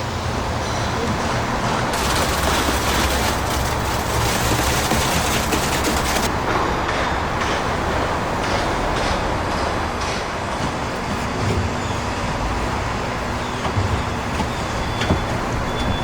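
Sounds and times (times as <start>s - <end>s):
construction machinery rumbling: 0.0s - 16.0s
machinery clanks: 1.2s - 16.0s.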